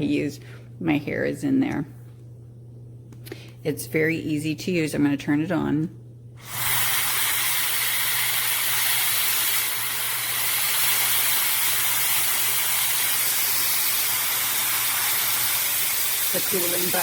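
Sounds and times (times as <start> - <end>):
hair dryer fan blowing air: 6.4 - 17.0.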